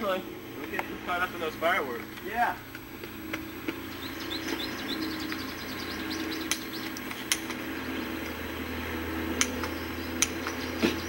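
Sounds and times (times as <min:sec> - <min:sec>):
steady low hum: 0:00.0 - 0:11.0
bird trilling: 0:02.9 - 0:08.7
sharp clicks: 0:06.4 - 0:07.6, 0:09.4 - 0:10.6.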